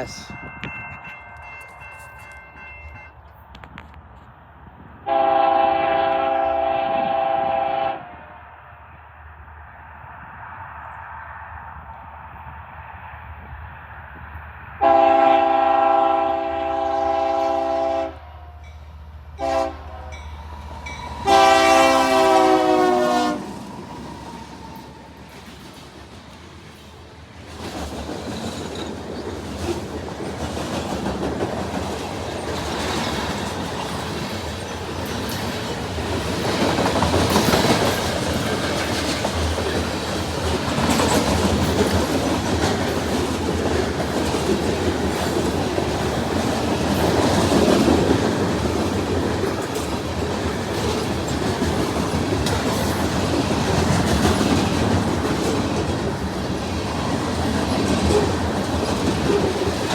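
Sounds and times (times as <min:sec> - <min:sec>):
freight train rolling past: 0:00.0 - 0:59.9
wheels clicking over rail joints: 0:23.6 - 0:59.9.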